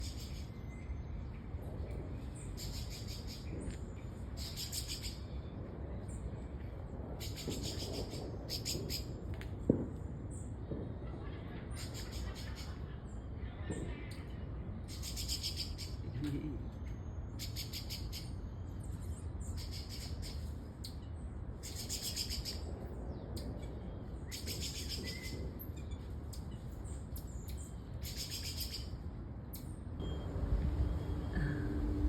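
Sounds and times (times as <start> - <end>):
steady low rumble: 0.0 - 15.0, 29.9 - 32.0.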